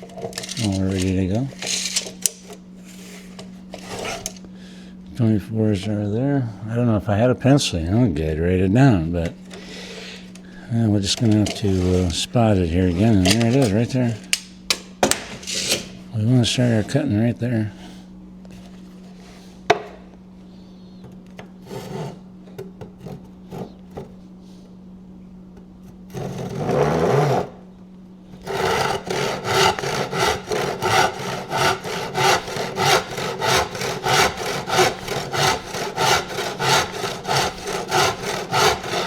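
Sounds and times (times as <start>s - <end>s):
saw cutting through wood: 0.0s - 4.4s, 11.1s - 14.4s, 15.2s - 17.0s, 21.6s - 22.2s, 26.1s - 27.6s, 28.4s - 39.0s.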